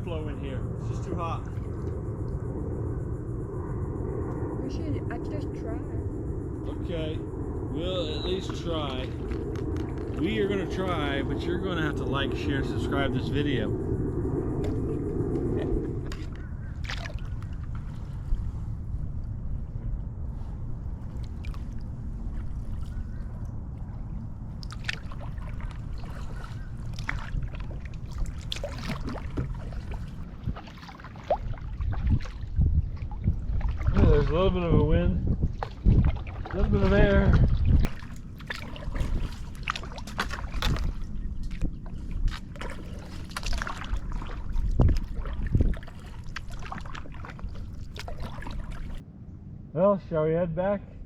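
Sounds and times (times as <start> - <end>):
low steady rumble: 0.0 - 51.0
paddle splashing water: 15.7 - 18.7, 20.9 - 34.4, 35.4 - 49.0.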